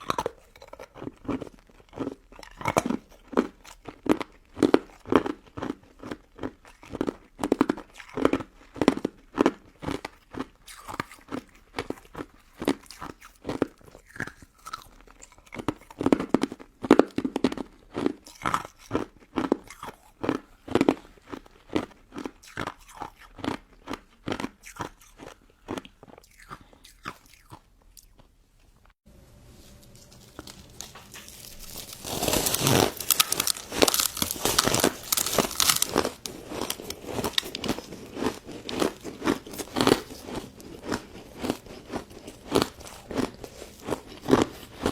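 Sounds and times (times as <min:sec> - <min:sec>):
crisp chewing crunches: 0:00.0 - 0:29.0, 0:29.8 - 0:44.9
crackling rustling noise: 0:29.2 - 0:44.9.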